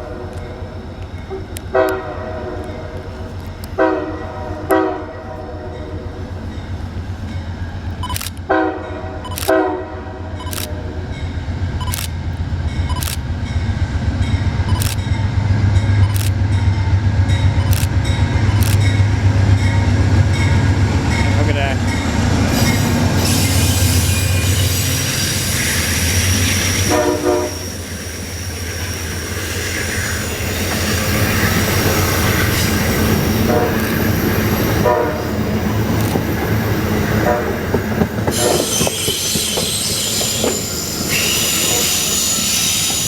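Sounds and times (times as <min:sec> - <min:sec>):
train rumbling: 0:00.0 - 0:43.0
train horn blasts: 0:01.4 - 0:03.1, 0:03.7 - 0:06.0, 0:08.5 - 0:10.4, 0:26.8 - 0:27.7, 0:33.4 - 0:34.2, 0:34.8 - 0:35.5, 0:37.2 - 0:40.5
wheel squeal: 0:38.3 - 0:43.0.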